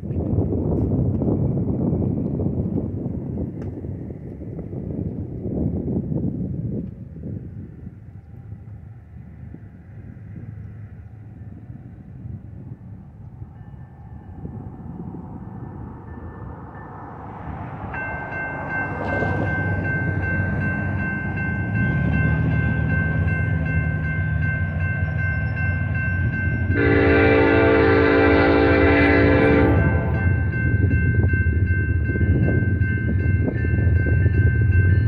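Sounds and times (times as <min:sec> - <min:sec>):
diesel locomotive rumbling: 0:00.0 - 0:35.0
railroad crossing bell ringing: 0:13.4 - 0:35.0
train horn blast: 0:26.6 - 0:30.5.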